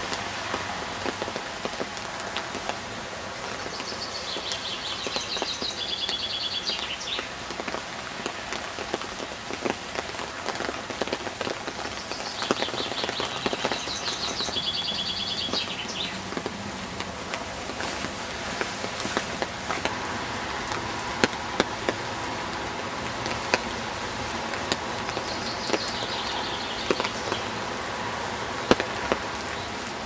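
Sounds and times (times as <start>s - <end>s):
rain falling: 0.0s - 30.0s
songbird singing: 3.4s - 7.4s, 11.8s - 16.3s, 25.0s - 27.6s.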